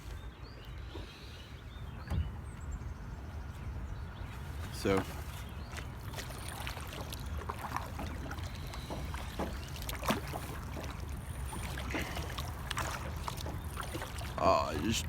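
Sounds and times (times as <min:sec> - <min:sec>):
paddle blades splashing: 0:04.1 - 0:15.0
paddle knock: 0:04.9 - 0:14.9
water dripping: 0:05.7 - 0:15.0.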